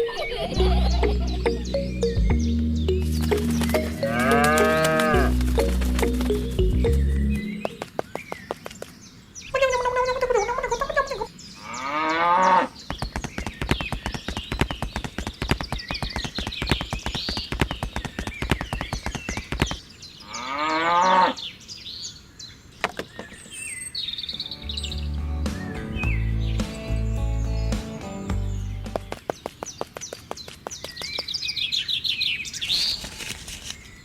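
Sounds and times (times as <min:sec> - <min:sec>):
birds chirping faintly: 0:00.0 - 0:34.0
cows mooing: 0:03.9 - 0:05.4
rapid clicking: 0:12.9 - 0:19.8.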